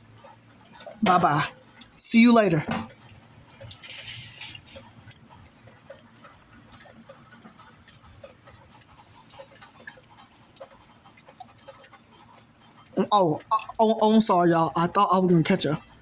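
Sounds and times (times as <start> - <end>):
small ticks and taps: 5.1 - 13.0.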